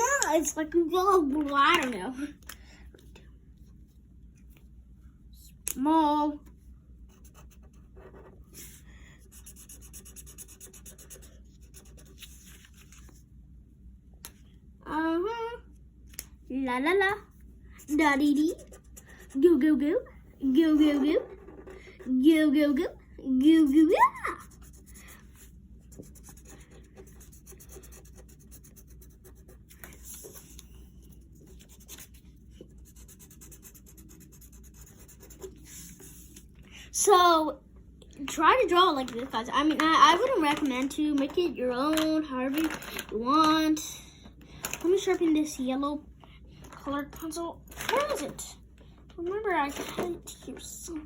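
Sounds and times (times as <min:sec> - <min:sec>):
pencil scribbling on paper: 0:07.1 - 0:12.3, 0:17.8 - 0:19.8, 0:24.3 - 0:36.4.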